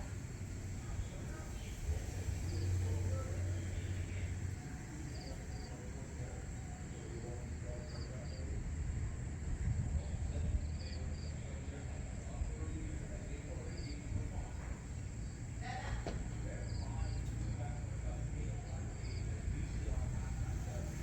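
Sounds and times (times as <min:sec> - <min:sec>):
insect-like hiss: 0:00.0 - 0:08.4.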